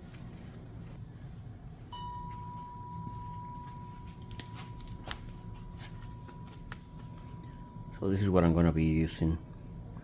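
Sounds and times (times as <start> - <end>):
steady high-pitched tone: 1.8 - 9.4.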